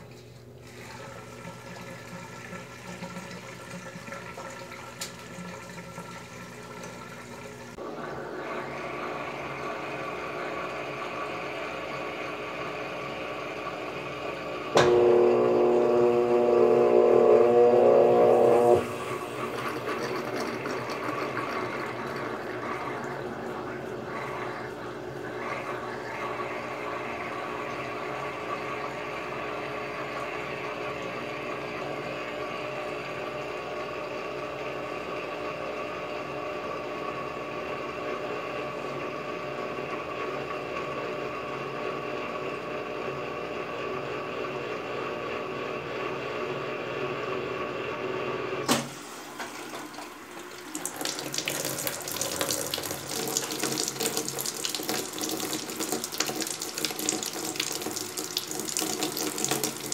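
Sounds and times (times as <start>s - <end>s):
washing machine water flow and hum: 0.0s - 59.9s
washing machine click: 48.6s - 49.9s.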